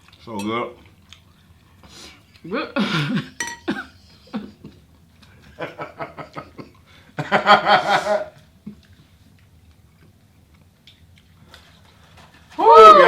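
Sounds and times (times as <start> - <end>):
person laughing: 2.8 - 4.8, 5.5 - 8.4.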